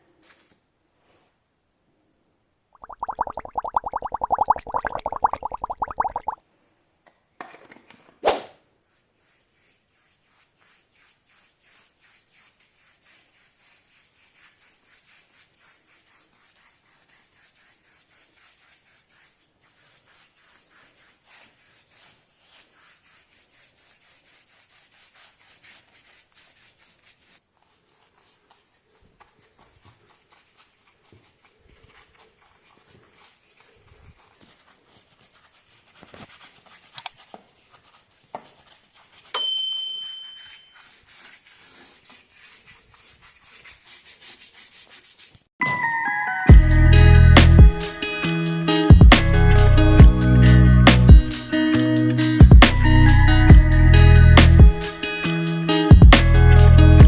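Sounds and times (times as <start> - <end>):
rubbing strokes on metal: 8.9 - 39.3, 40.4 - 45.5.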